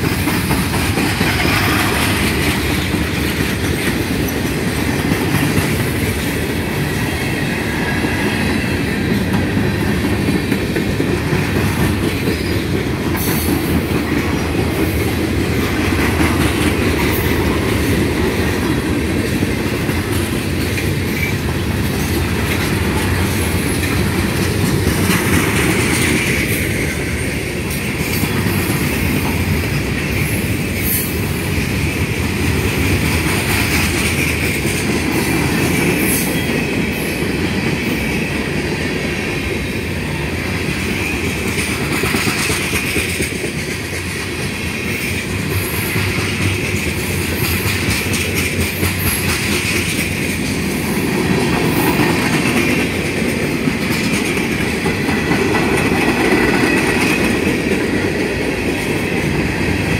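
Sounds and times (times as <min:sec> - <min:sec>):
wheels clicking over rail joints: 0:00.0 - 0:07.3, 0:41.0 - 0:59.9
freight train wheels rumbling on rails: 0:00.0 - 0:59.9.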